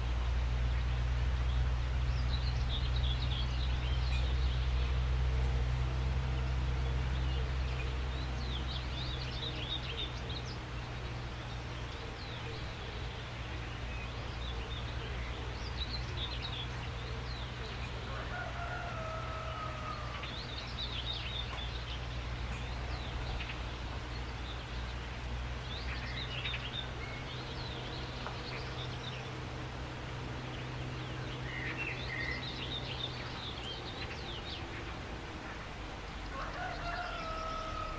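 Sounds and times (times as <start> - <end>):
wild birds chirping: 0.0 - 37.9.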